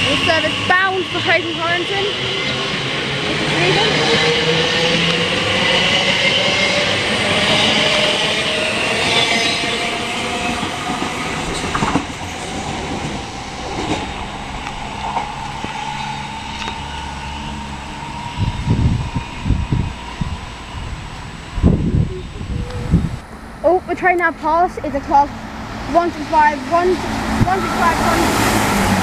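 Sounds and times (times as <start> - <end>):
rail noise: 0.0 - 29.0
traction motor whine: 11.4 - 23.7.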